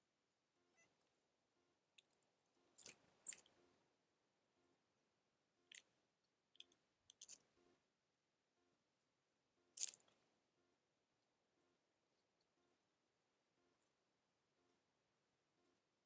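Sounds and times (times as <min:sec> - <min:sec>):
animal crunching food: 0:09.8 - 0:10.1.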